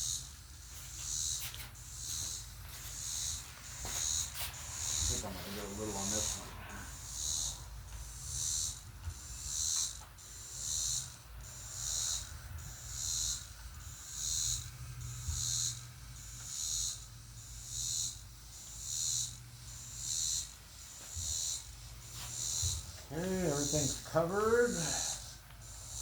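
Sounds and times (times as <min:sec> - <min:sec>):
paintbrush swishing: 0:04.3 - 0:06.6.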